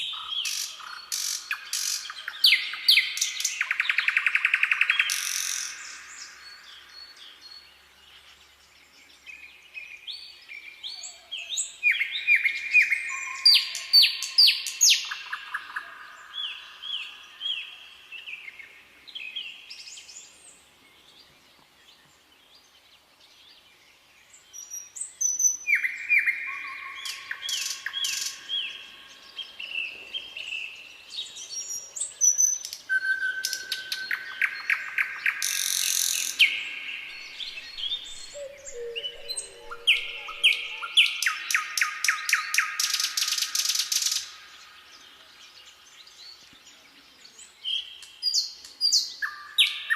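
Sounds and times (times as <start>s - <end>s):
songbirds whistling: 31.2s - 44.7s.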